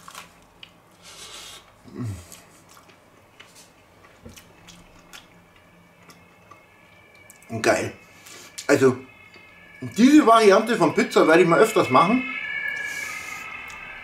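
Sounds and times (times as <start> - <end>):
person chewing pizza: 0.0 - 7.5
low hum: 1.8 - 14.0.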